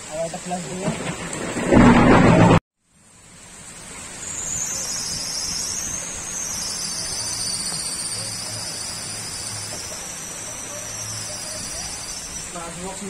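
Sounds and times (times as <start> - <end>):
heavy rain: 0.0 - 13.0
soft rain hiss: 0.0 - 13.0
thunder: 0.5 - 2.6
crickets chorus: 3.2 - 13.0.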